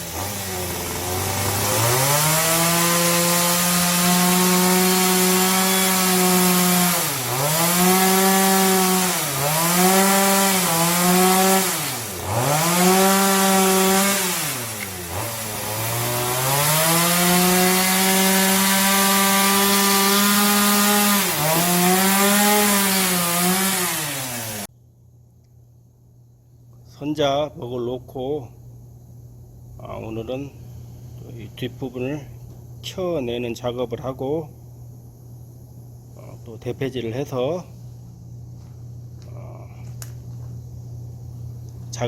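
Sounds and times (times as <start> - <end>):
chainsaw cutting wood: 0.0 - 24.7.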